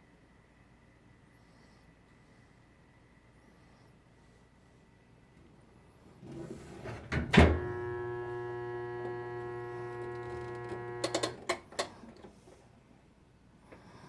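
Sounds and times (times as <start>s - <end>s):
washing machine motor humming: 6.2s - 12.2s
washing machine thunk: 6.8s - 7.9s.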